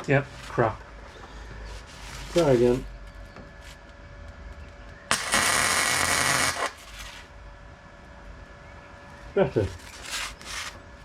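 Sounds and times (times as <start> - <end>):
welder arc crackling: 4.9 - 7.4.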